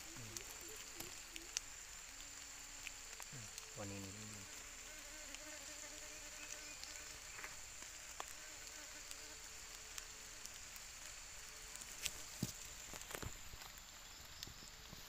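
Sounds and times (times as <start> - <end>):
high-pitched insect drone: 0.0 - 9.4
faint crackling: 0.0 - 15.0.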